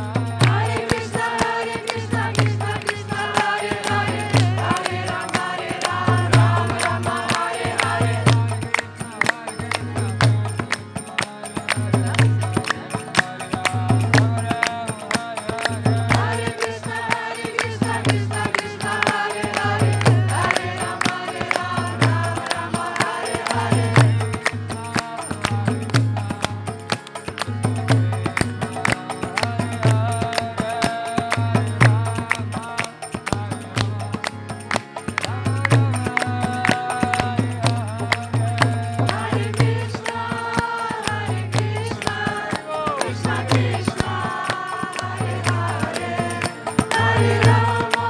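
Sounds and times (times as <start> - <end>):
people chanting: 0.0 - 10.2, 15.7 - 25.6, 38.7 - 48.0.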